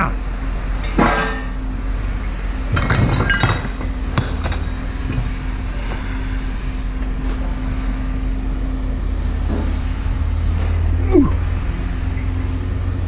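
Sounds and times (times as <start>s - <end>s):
low hum: 0.0s - 13.0s
scrap metal clinking: 0.8s - 1.6s, 2.6s - 5.6s.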